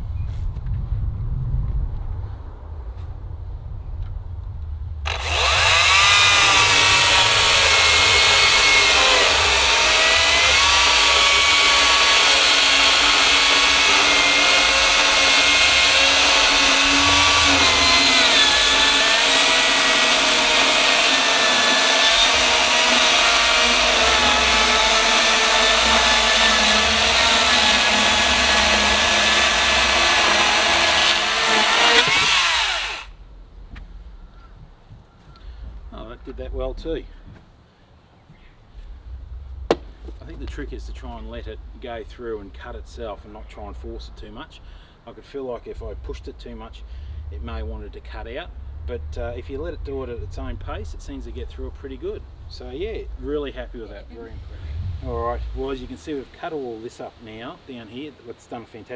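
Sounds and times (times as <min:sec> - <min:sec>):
chainsaw cutting wood: 0:05.1 - 0:33.2.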